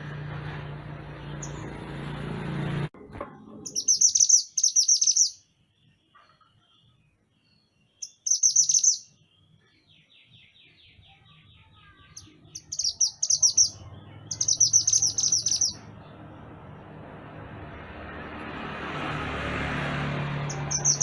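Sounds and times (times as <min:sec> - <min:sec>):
songbird chattering trills: 0:03.7 - 0:05.4, 0:07.9 - 0:15.9, 0:20.5 - 0:21.0.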